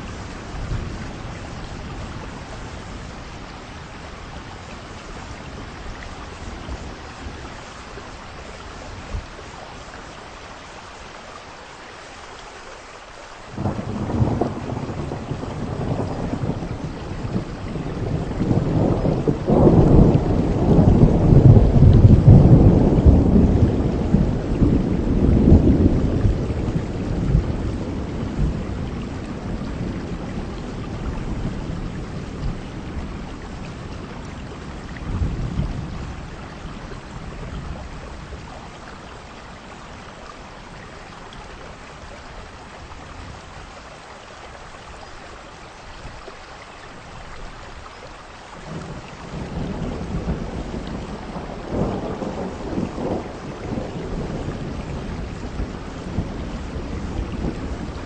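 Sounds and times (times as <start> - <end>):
heavy rain: 0.0 - 58.0
thunder rumbling: 13.5 - 39.6, 48.6 - 58.0.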